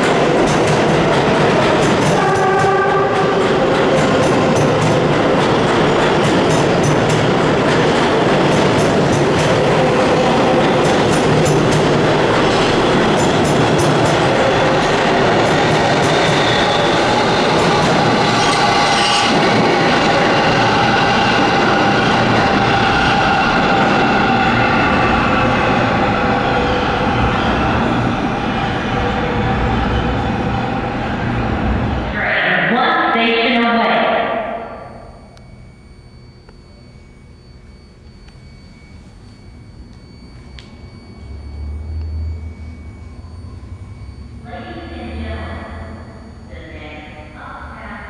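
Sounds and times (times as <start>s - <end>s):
wheels clicking over rail joints: 0.0s - 20.9s
subway train rumbling on rails: 0.0s - 48.0s
train whine: 0.0s - 48.0s.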